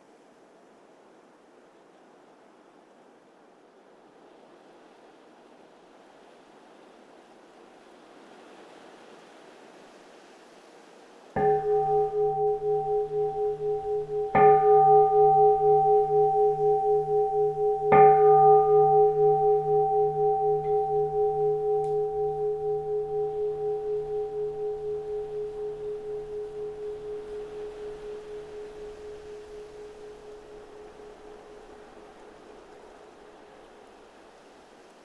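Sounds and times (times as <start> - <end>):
temple bowl bell ringing: 11.4 - 33.8
faint wind: 11.4 - 35.0.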